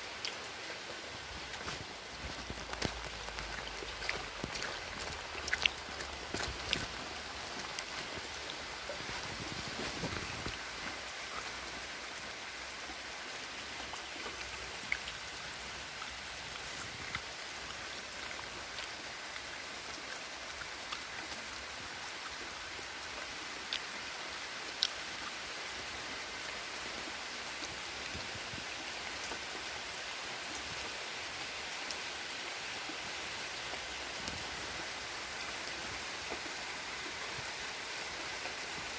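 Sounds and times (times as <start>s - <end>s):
raindrops ticking: 0.0s - 25.6s
steady rain hiss: 0.0s - 38.9s.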